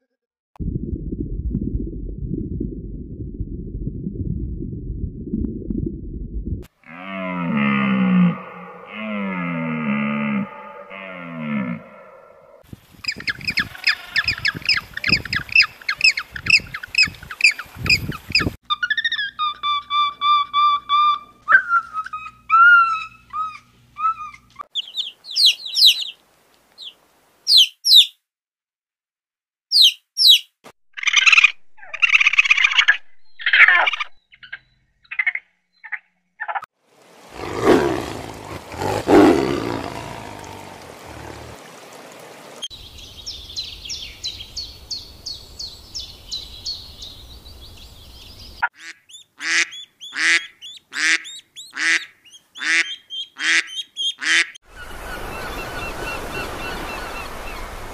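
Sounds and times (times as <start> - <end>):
whistled bird calls and chirps: 13.1 - 26.2, 26.8 - 28.2, 29.7 - 30.5
geese honking: 48.7 - 55.3.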